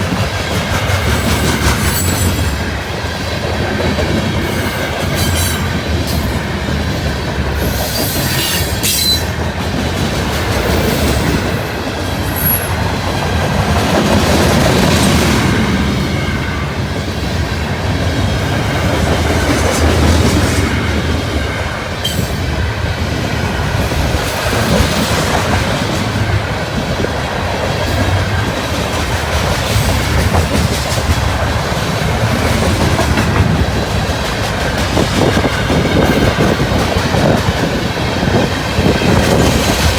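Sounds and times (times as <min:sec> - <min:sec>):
train wheel squeal: 0:00.0 - 0:03.0, 0:04.4 - 0:09.6, 0:10.4 - 0:13.0, 0:18.3 - 0:22.6
train wheels clacking over rail joints: 0:00.0 - 0:15.7, 0:17.9 - 0:39.9
wind buffeting microphone: 0:00.0 - 0:39.9.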